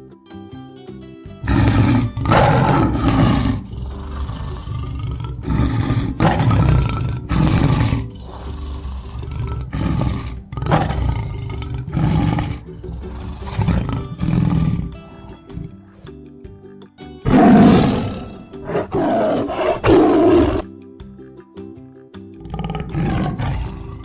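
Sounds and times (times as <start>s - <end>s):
tiger roaring: 1.4s - 15.7s, 17.2s - 20.6s, 22.4s - 24.0s.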